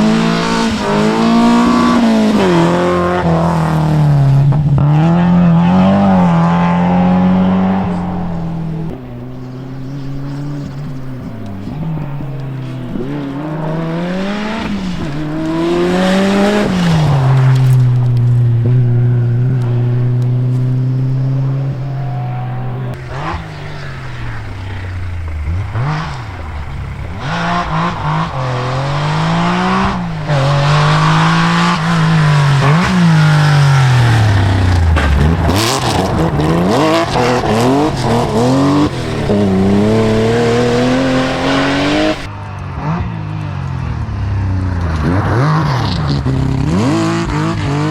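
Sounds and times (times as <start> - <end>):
rally car engine revving: 0.0 - 47.9.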